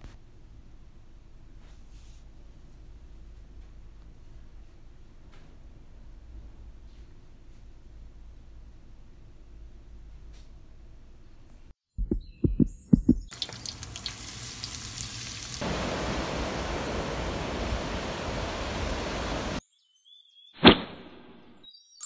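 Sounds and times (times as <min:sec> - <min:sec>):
meat sizzling on a griddle: 0:13.4 - 0:16.2.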